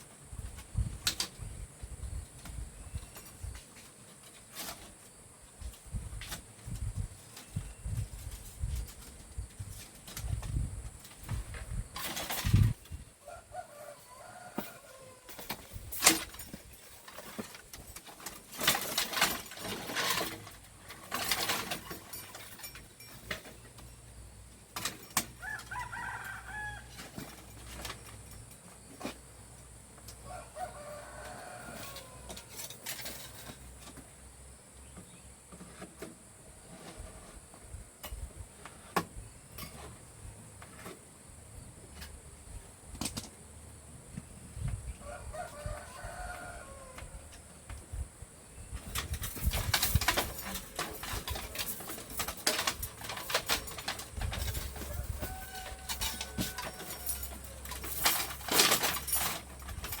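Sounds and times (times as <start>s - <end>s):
crackling and rustling: 0.0s - 60.0s
rooster crowing: 13.2s - 15.4s, 25.4s - 27.0s, 30.2s - 32.5s, 45.0s - 47.5s, 54.8s - 57.6s.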